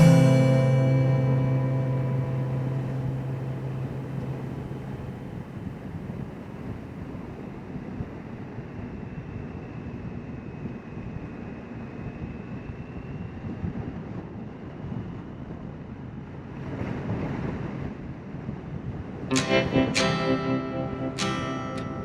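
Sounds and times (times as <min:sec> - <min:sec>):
acoustic guitar music: 0:00.0 - 0:05.7, 0:19.3 - 0:22.0
faint steady whine: 0:00.0 - 0:16.3.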